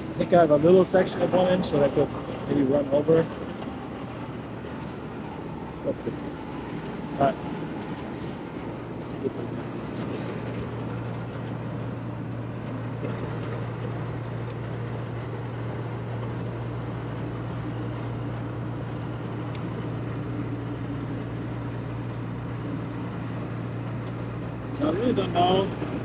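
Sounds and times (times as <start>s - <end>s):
air conditioning unit humming: 0.0s - 26.0s.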